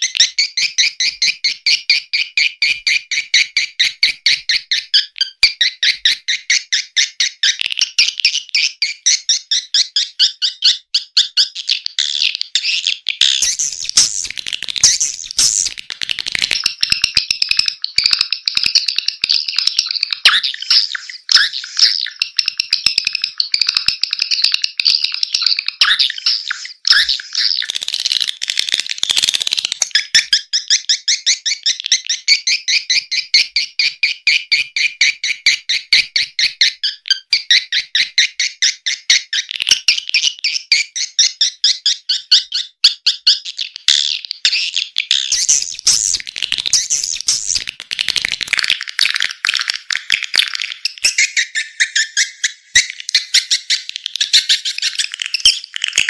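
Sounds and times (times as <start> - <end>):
swiftlet twittering: 45.3 - 47.7.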